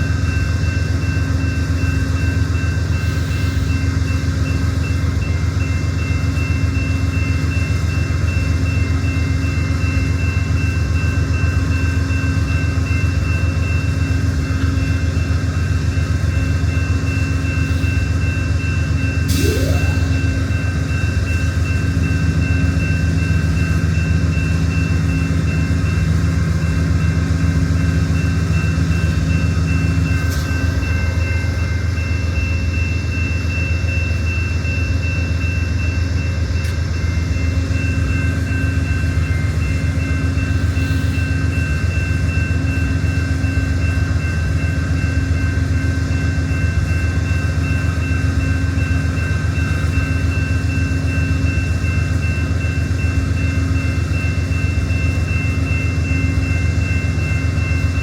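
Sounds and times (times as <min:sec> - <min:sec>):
diesel locomotive idling: 0:00.0 - 0:58.0
high whine: 0:19.3 - 0:21.1.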